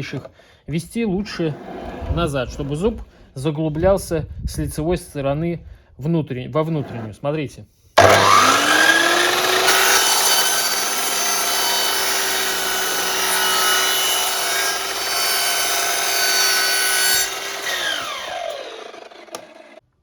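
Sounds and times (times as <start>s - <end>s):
miter saw cutting board: 8.0s - 19.8s
saw blade spinning down whine: 8.0s - 19.8s.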